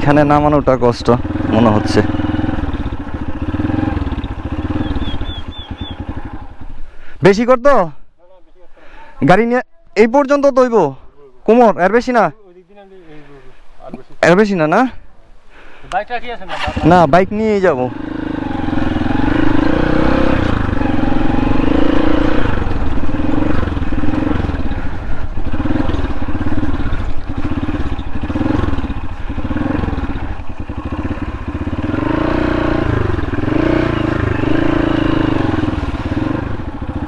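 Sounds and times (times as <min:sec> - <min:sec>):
motorcycle engine throttle blips: 0:00.0 - 0:07.0, 0:15.9 - 0:37.0.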